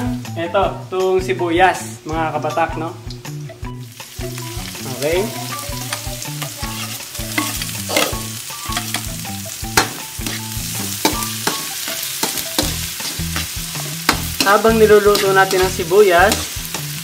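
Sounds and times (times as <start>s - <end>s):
onion sizzling in hot oil: 0.0s - 17.0s
utensil scraping a pan: 9.8s - 17.0s.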